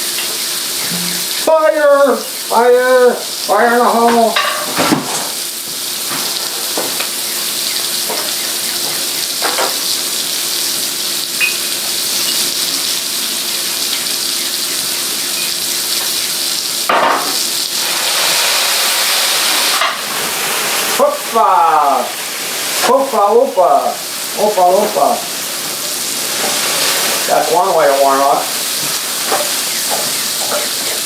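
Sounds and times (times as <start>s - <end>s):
garlic and mushrooms sizzling in butter: 0.0s - 31.0s
utensil knocking against pan: 4.1s - 5.1s.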